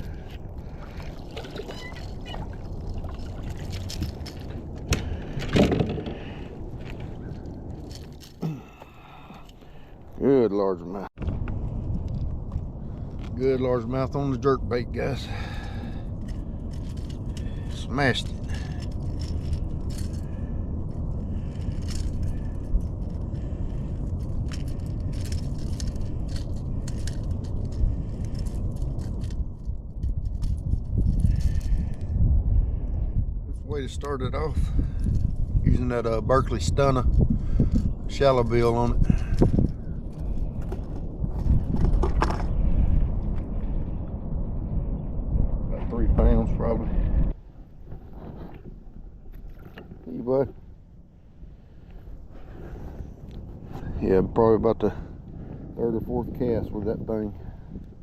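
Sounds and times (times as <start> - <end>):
water sloshing around kayak: 0.0 - 6.2
low rumble: 0.0 - 58.0
wind buffeting microphone: 0.0 - 58.0.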